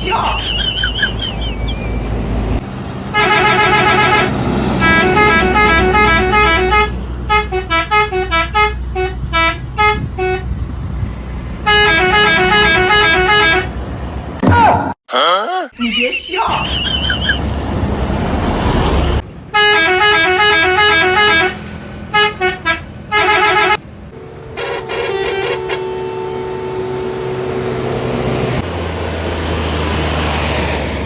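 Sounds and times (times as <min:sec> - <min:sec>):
diesel engine: 0:00.0 - 0:14.5, 0:16.0 - 0:31.0
traffic noise: 0:00.0 - 0:15.0, 0:15.8 - 0:31.0
long steady horn note: 0:03.1 - 0:10.6, 0:11.6 - 0:13.8, 0:19.5 - 0:28.6
musical vehicle horns: 0:03.1 - 0:10.7, 0:11.6 - 0:13.8, 0:19.5 - 0:28.6.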